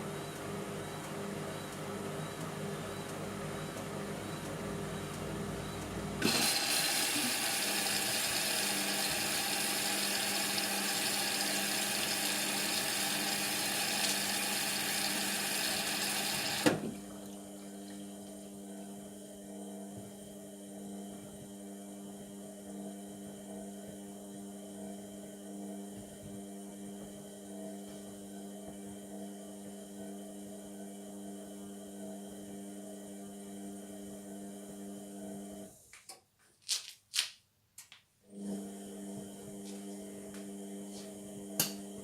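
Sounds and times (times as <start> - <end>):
water rushing into washing machine: 6.2 - 17.3.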